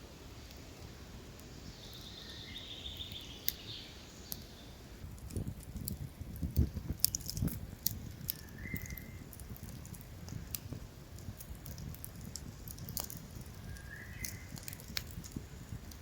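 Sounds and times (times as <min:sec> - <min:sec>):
sharp clicks: 0:05.2 - 0:16.0.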